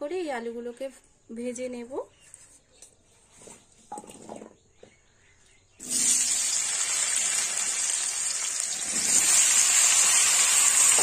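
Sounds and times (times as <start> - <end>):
hot oil sizzling: 5.8 - 11.0.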